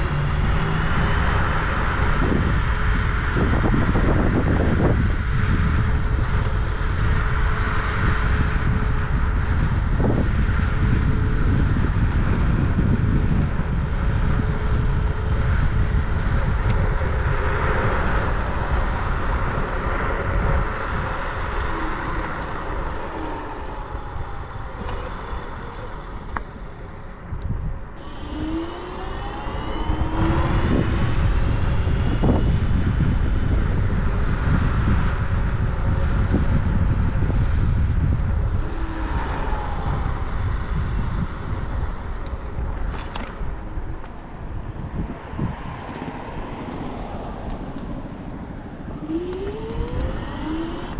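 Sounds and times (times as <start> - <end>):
road and traffic noise: 0.0 - 50.9
wind on microphone: 0.0 - 50.9
faint whines: 20.2 - 33.4, 37.3 - 50.9.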